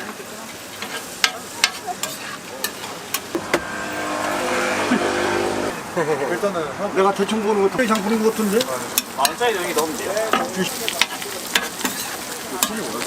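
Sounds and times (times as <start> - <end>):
griddle sizzling: 0.0 - 13.0
passing vehicle engine: 3.3 - 6.4.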